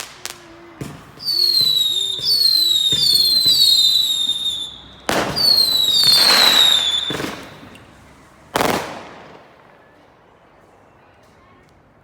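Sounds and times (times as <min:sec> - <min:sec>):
firework bangs: 0:00.0 - 0:09.6
whistling fireworks: 0:00.0 - 0:11.0.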